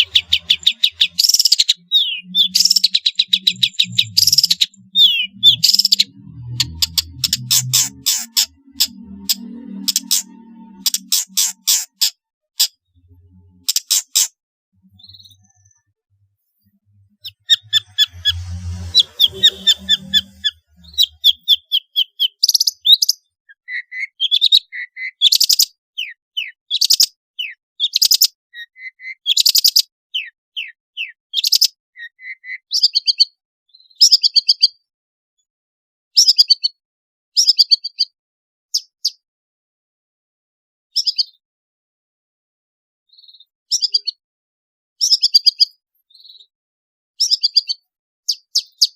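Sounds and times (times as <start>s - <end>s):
bird singing sharp high notes: 0.0s - 16.0s, 17.0s - 26.6s.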